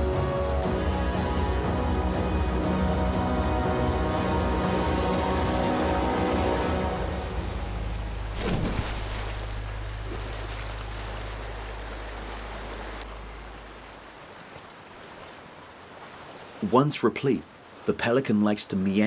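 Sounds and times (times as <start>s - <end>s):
sea rushing along shore: 0.0s - 19.0s
low steady hum: 0.8s - 14.3s.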